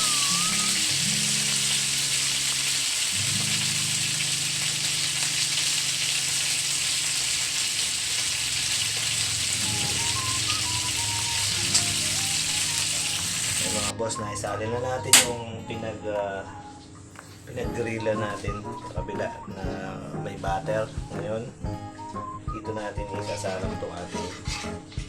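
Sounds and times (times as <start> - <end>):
background music: 0.0 - 7.7, 9.1 - 25.0
chicken sizzling in a pan: 0.0 - 13.9
short click: 15.2 - 15.4.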